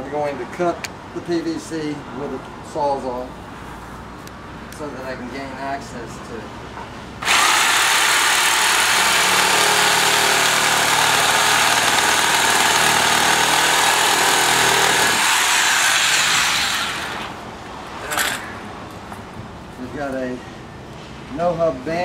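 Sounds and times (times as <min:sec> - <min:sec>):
reciprocating saw cutting pipe: 0:07.2 - 0:17.4.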